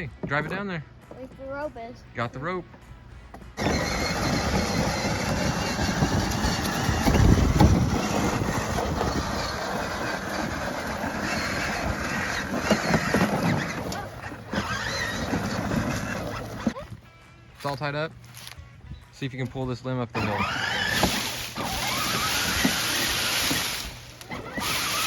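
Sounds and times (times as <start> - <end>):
toy truck electric motors: 3.6 - 16.8, 20.2 - 25.0.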